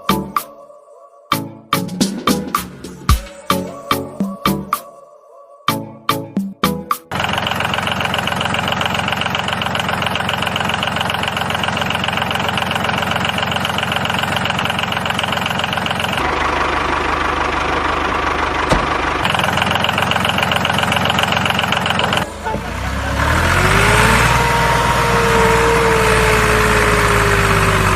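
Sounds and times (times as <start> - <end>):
engine idling: 7.1 - 27.9.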